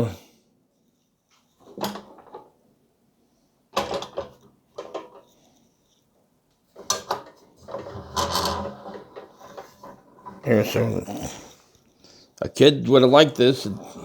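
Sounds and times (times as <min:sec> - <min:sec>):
toy truck parts clanking: 0:06.8 - 0:10.8.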